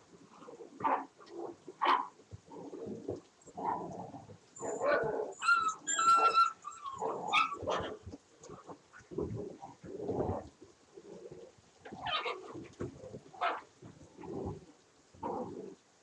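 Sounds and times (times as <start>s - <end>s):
dogs barking and yipping: 1.8s - 2.1s, 4.6s - 8.2s, 12.0s - 12.6s
dogs whining: 4.6s - 7.9s.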